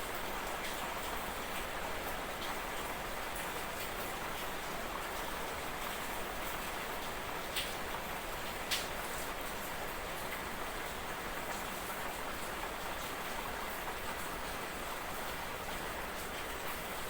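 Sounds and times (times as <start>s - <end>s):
raindrops ticking: 8.7s - 8.9s.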